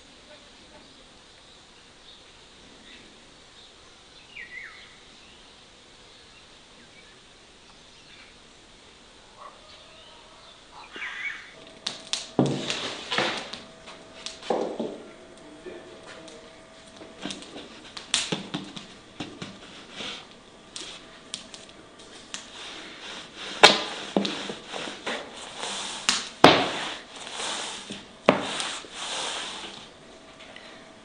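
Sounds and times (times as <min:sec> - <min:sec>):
scraping: 0:11.6 - 0:30.0.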